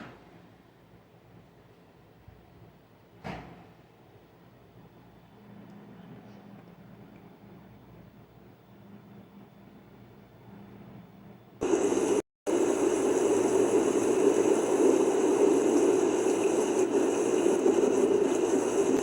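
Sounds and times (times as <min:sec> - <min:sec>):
faint hiss: 0:11.6 - 0:19.0.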